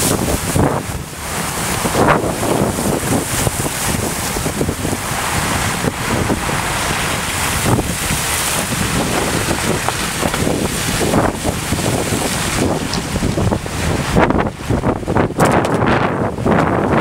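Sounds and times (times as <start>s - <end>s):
storm wind buffeting microphone: 0.0s - 17.0s
surf washing: 0.0s - 17.0s.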